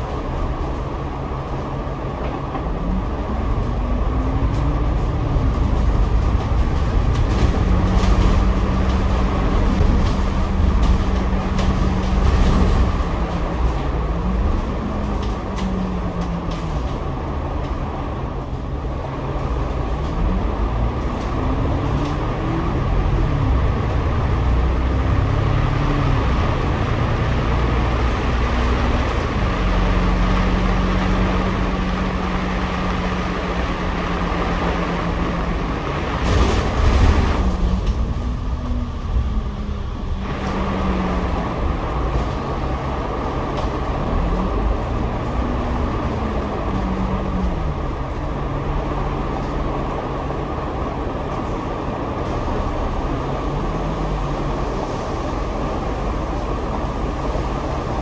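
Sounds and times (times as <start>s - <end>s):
bus engine: 0.0s - 58.0s
road and tyre noise: 0.0s - 58.0s.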